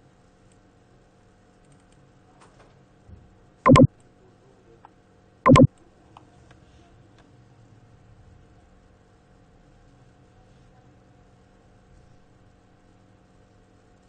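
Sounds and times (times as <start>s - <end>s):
short sharp sounds: 3.7s - 3.9s, 5.5s - 5.7s.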